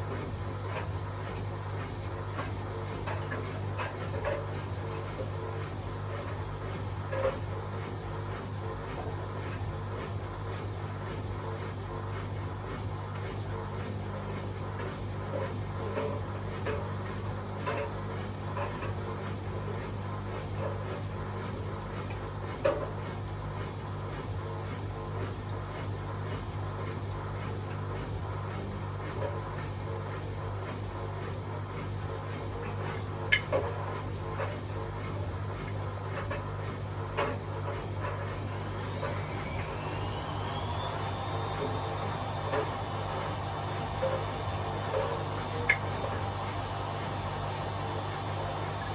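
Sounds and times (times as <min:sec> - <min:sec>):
washing machine motor hum: 0:00.0 - 0:48.9
rising motor whine: 0:38.4 - 0:48.9.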